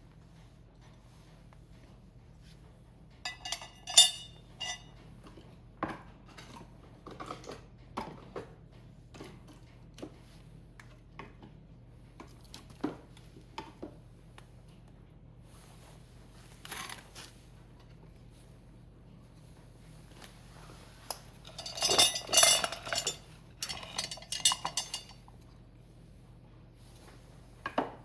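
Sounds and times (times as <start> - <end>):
ringing metal clinks: 3.3 - 4.8, 21.5 - 25.1.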